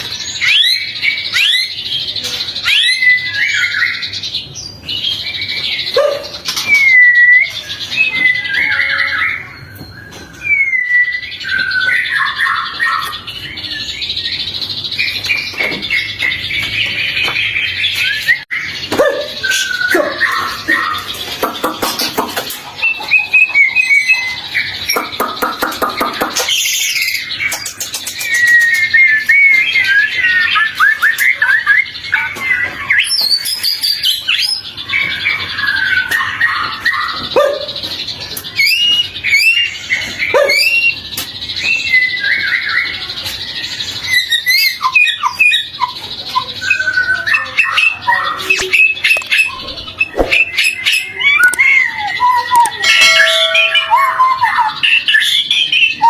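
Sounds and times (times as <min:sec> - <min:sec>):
bird singing whistled song: 0:00.0 - 0:21.3, 0:22.7 - 0:56.0
bird chattering rattles: 0:19.1 - 0:31.6, 0:42.9 - 0:55.7.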